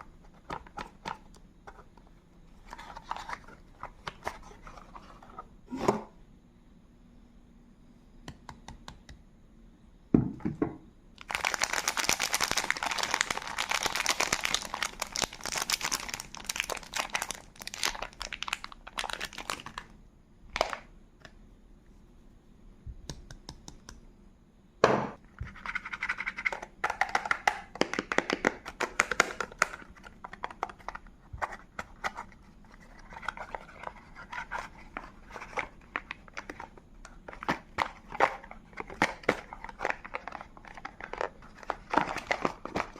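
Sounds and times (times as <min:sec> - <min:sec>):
wrapper crinkling and tearing: 0:11.2 - 0:19.9.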